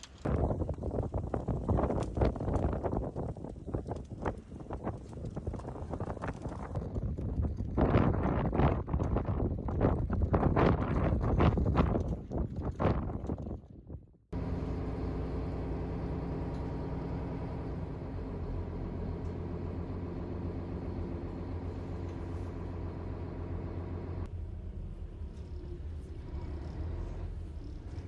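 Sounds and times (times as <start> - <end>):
road vehicle rumbling: 14.3 - 28.0.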